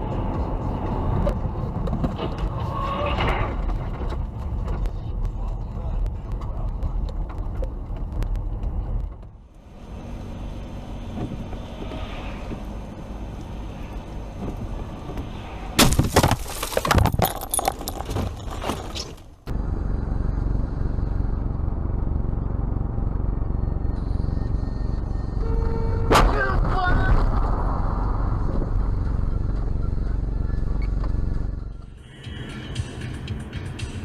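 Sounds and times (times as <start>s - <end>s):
car engine and road rumble: 0.0s - 34.0s
car crash impact: 15.8s - 19.3s
debris clattering and breaking: 15.8s - 19.3s.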